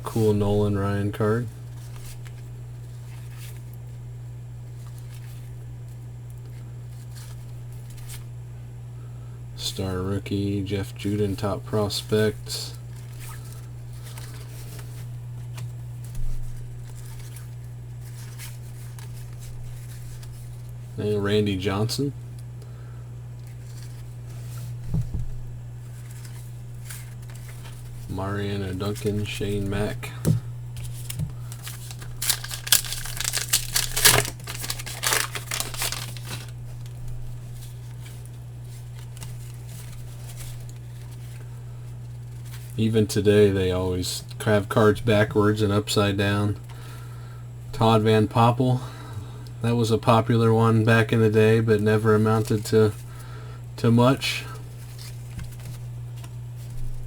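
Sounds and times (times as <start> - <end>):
steady low hum: 0.0 - 57.0
cards clicking and sliding: 30.3 - 36.5
foil wrapper tearing and crinkling: 30.8 - 42.8.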